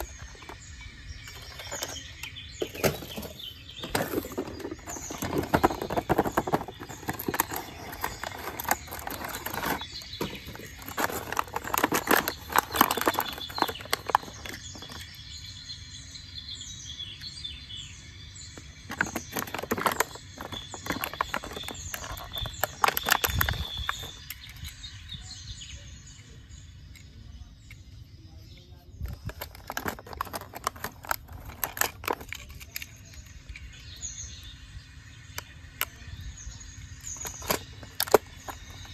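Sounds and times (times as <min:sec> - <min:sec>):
birds chirping: 0:00.0 - 0:38.9
rapid clicking and rattling: 0:02.6 - 0:15.1, 0:18.9 - 0:24.5, 0:29.0 - 0:33.1.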